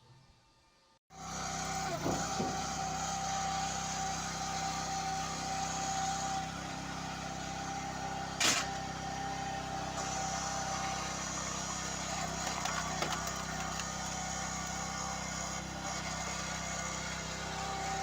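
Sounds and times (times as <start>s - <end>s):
engine running with whine: 1.1s - 18.0s
knocks: 2.0s - 2.7s.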